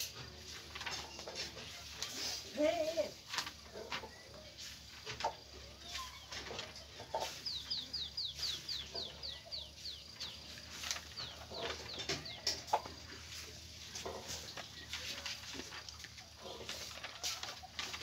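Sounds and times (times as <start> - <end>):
birds chirping high: 3.6 - 18.0.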